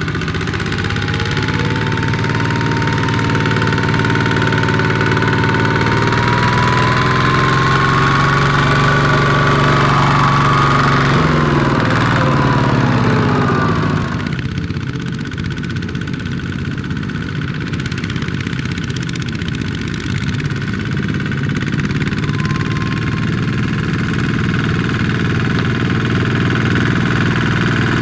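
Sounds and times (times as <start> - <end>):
tractor engine whining under load: 0.0 - 28.0.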